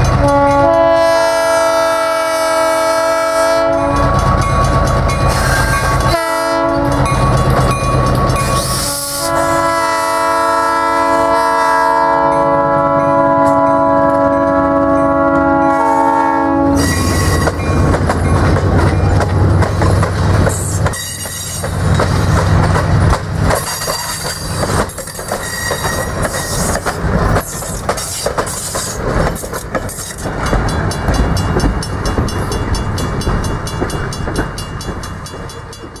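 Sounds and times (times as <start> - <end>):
diesel locomotive engine: 0.0 - 36.0
locomotive air horn chord: 0.2 - 4.3, 5.4 - 7.1, 8.7 - 17.5
wheels clattering over rail joints: 16.8 - 36.0.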